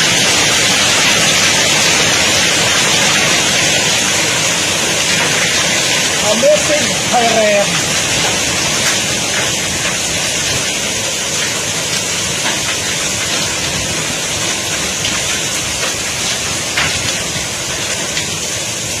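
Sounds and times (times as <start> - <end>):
hailstones ticking: 0.0 - 19.0
heavy rain hissing: 0.0 - 19.0.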